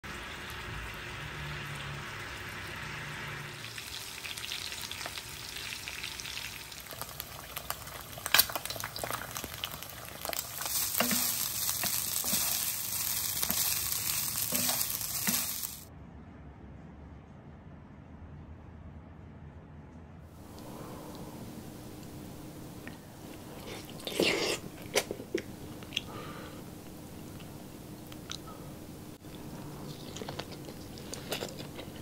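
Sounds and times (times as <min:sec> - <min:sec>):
food sizzling in hot oil: 0:00.0 - 0:15.9.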